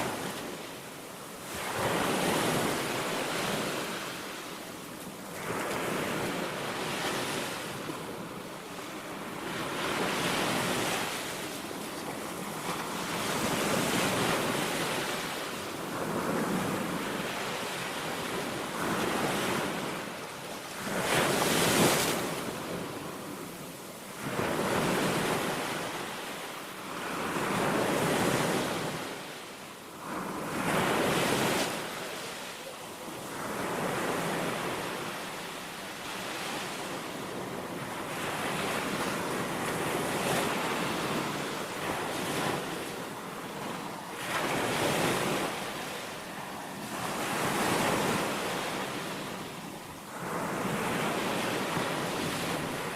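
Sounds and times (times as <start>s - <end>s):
sea waves breaking on beach: 0.0s - 52.9s.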